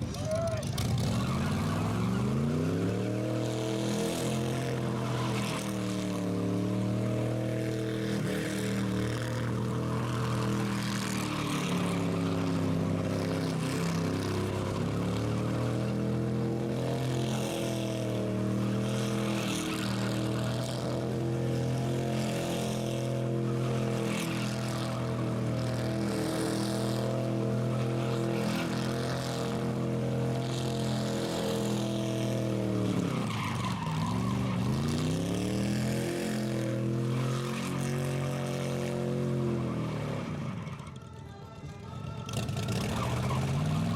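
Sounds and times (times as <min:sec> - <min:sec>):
car engine revving high: 0:00.8 - 0:40.6
tyres squealing: 0:08.0 - 0:38.3.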